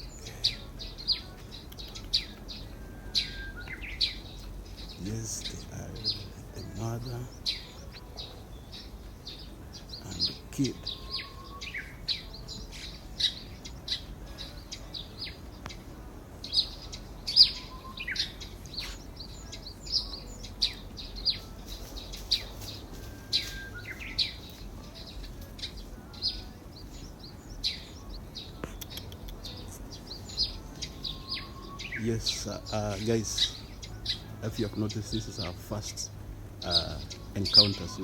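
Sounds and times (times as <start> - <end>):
wild birds chirping: 0.0 - 38.0.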